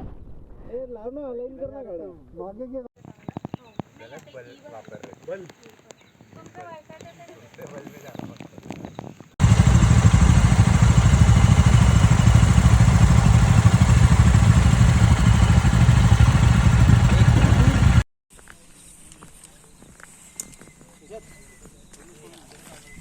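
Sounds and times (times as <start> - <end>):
motorcycle engine running: 9.4 - 18.0
noisy rush: 9.4 - 18.0.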